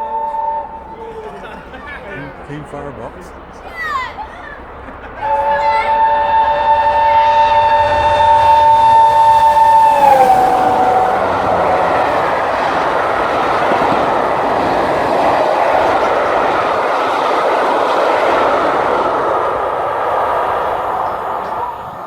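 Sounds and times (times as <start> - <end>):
steam train whistle: 0.0 - 1.3, 5.2 - 14.4
rush of passing train: 0.0 - 22.0.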